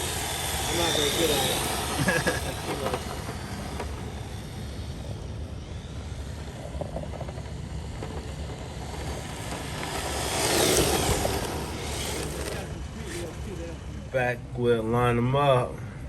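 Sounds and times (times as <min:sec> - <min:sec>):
rc car motor whining: 0:00.0 - 0:15.7
steady low rumble: 0:00.0 - 0:16.0.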